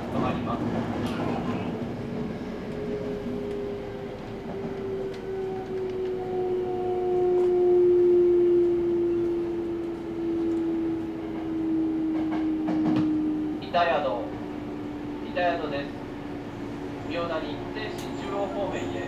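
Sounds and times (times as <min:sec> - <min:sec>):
train wheels rumbling on rail: 0:00.0 - 0:19.0
train motor whine: 0:02.7 - 0:13.6.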